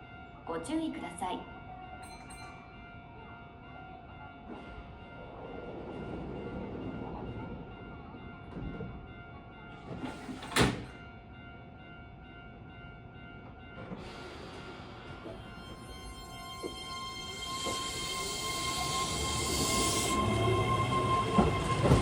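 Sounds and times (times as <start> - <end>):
train doors closing thud: 9.9 - 11.0.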